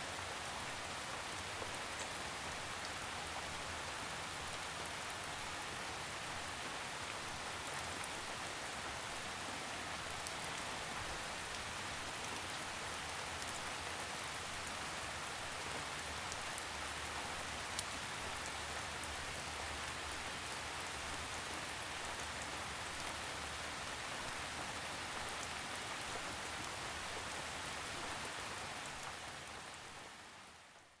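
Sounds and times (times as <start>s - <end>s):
rain drops ticking: 0.2s - 5.6s.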